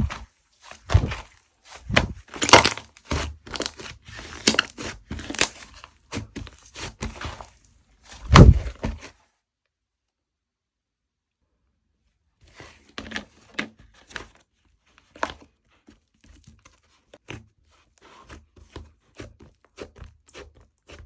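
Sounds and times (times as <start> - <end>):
slime squishing and popping: 1.9 - 5.8.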